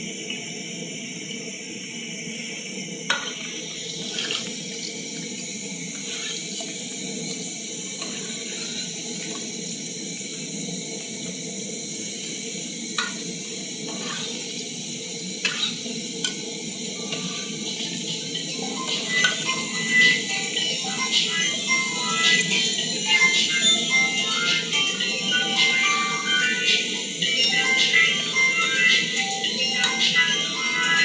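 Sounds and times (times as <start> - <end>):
chips deep-frying in hot oil: 6.0 - 7.5, 13.0 - 14.7.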